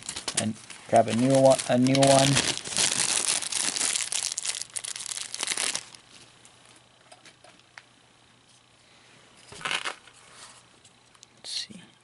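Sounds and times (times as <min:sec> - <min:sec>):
bag crinkling: 0:00.0 - 0:06.2, 0:09.6 - 0:10.1.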